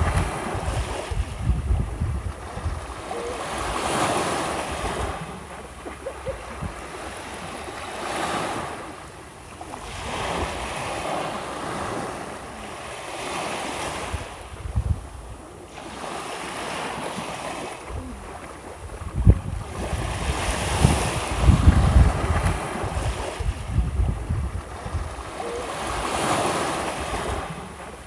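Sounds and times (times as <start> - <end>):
wind buffeting microphone: 0.0 - 8.7, 13.6 - 15.5, 17.9 - 27.7
small waves washing onto shore: 0.0 - 28.0.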